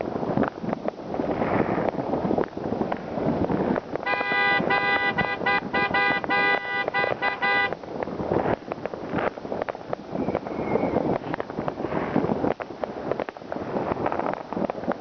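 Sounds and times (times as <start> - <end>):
fireworks crackling and banging: 0.0 - 15.0
horn honking short blasts: 4.0 - 7.8.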